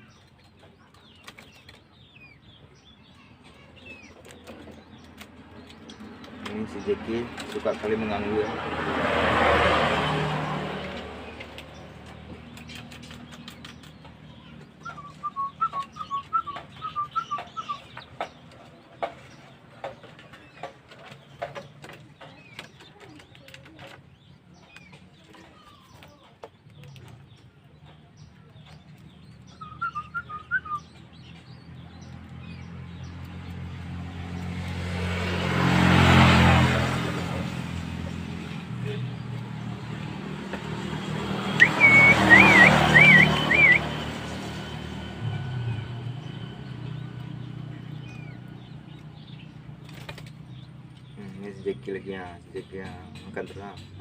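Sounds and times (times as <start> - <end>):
vehicle passing: 1.0 - 24.8, 27.3 - 54.0
small bird chirping: 11.3 - 34.7, 41.3 - 44.9.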